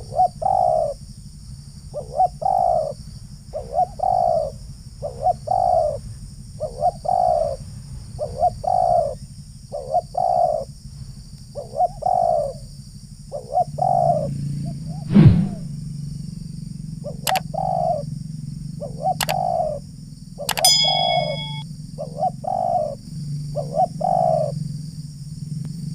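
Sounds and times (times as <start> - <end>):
dove cooing: 0.0 - 1.0, 1.9 - 6.0, 6.6 - 7.6, 8.2 - 10.7, 11.6 - 12.6, 13.3 - 14.3, 17.0 - 18.0, 18.8 - 19.8, 20.6 - 23.0, 23.6 - 24.6
dull thud: 15.1 - 15.6
sharp clicks: 19.2 - 19.4, 20.5 - 21.6.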